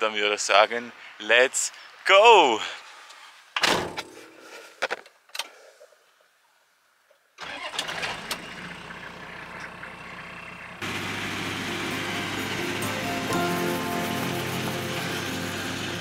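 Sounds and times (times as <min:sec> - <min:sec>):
car engine starting and running: 0:07.4 - 0:16.0.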